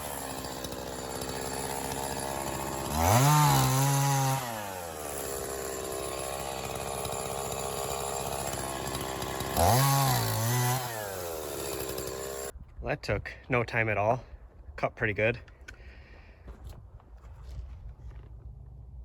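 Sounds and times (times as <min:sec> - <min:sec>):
chainsaw idling and revving: 0:00.0 - 0:12.5.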